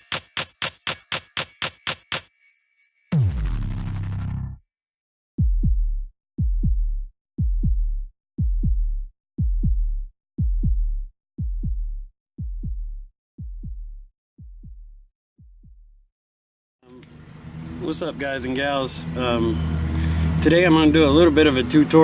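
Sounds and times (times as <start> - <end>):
double kick drum thump: 5.4 - 15.9.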